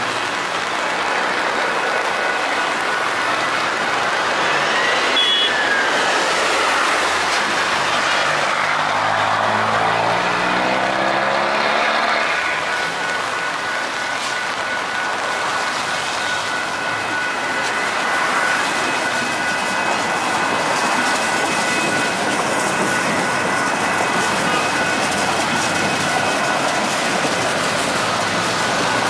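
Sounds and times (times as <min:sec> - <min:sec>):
train wheels rumbling on rails: 0:00.0 - 0:29.0
thin high whine: 0:02.0 - 0:25.0.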